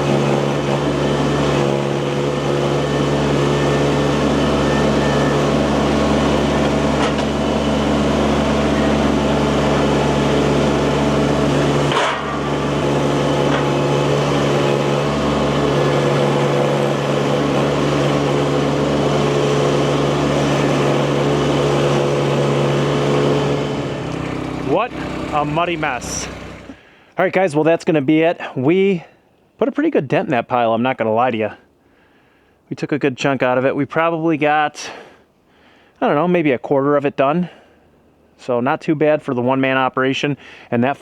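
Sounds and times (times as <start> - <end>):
small engine running: 0.0 - 26.9.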